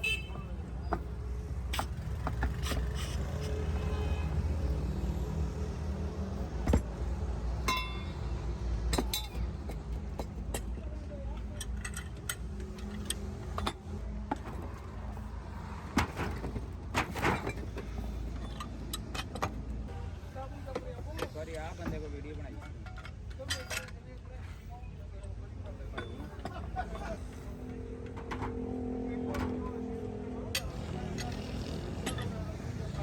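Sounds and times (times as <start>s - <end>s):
rumble of vehicle engines: 0.0s - 33.0s
metal clinks and knocks: 6.6s - 14.9s, 22.4s - 24.2s.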